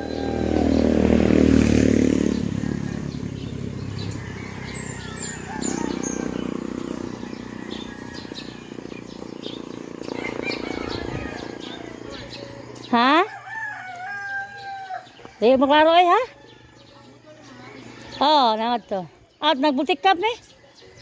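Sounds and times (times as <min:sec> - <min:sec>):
vehicle engine passing by: 0:00.0 - 0:13.4
small birds chirping: 0:00.0 - 0:21.0.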